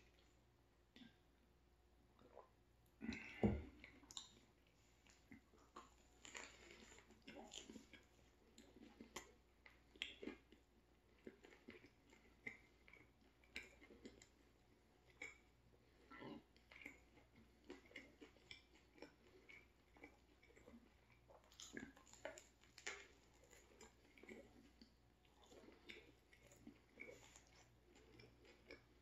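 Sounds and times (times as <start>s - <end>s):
chewing sandwich: 2.2s - 29.0s.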